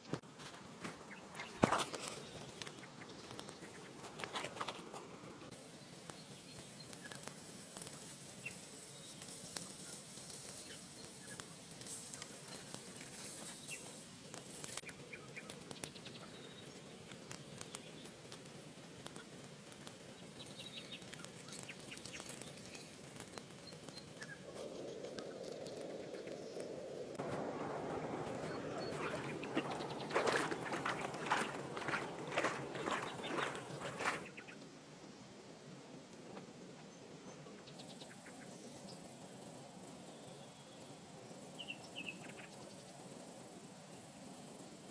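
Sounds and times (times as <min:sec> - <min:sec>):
faint steady hiss: 0:00.0 - 0:44.9
low rushing noise: 0:24.5 - 0:34.3
bird chirps: 0:27.5 - 0:34.6.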